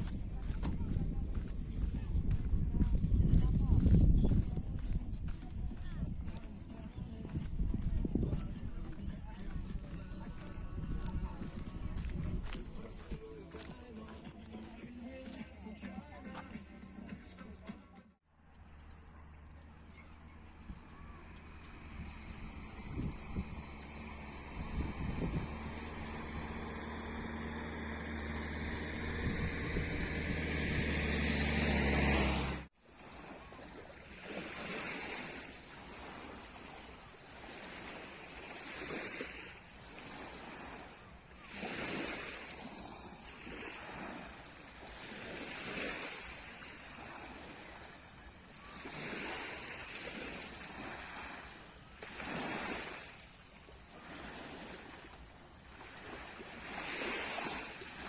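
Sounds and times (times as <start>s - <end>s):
wind on microphone: 0.0s - 13.4s, 20.6s - 54.8s
low mechanical hum: 18.5s - 32.7s
sea waves breaking on shore: 20.3s - 58.0s.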